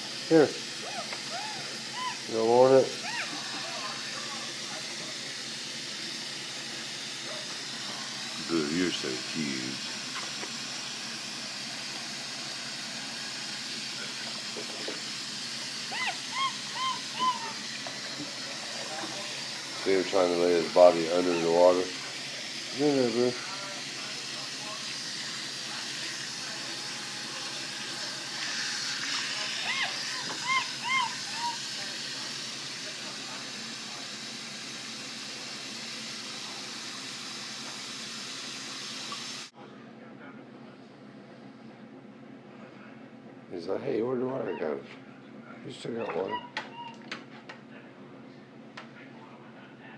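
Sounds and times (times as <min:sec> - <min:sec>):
water running into a bath: 0:00.0 - 0:39.5
monkey chirping calls: 0:00.8 - 0:02.3, 0:03.0 - 0:03.9, 0:15.9 - 0:17.7, 0:29.6 - 0:31.6, 0:46.0 - 0:47.0.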